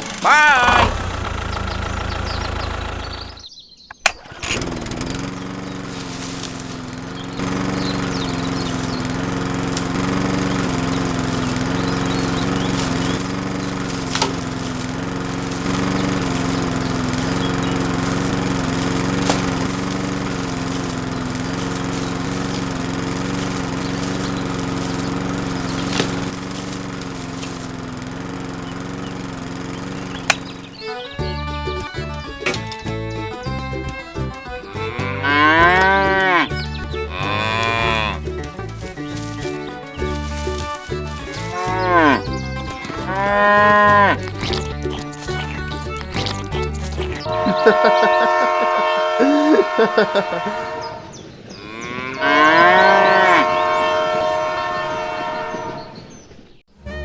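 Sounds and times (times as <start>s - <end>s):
sharp clicks: 0.0s - 27.6s, 28.5s - 31.1s
small motor humming: 0.0s - 50.6s.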